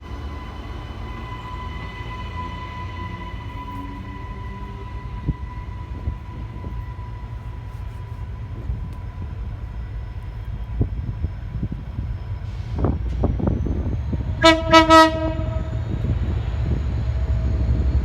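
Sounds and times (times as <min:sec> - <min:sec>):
freight train rumbling: 0:00.0 - 0:18.0.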